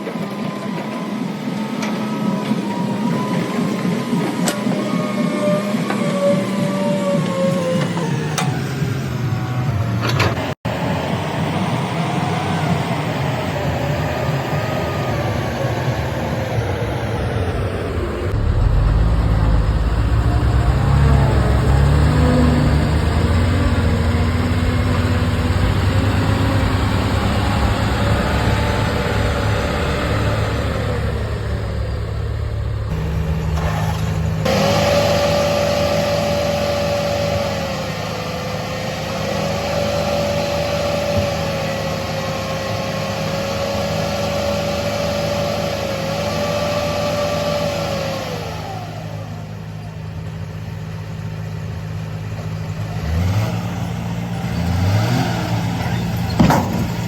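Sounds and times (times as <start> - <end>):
excavator diesel engine running: 0.0 - 57.0
wavering whine: 10.7 - 25.5.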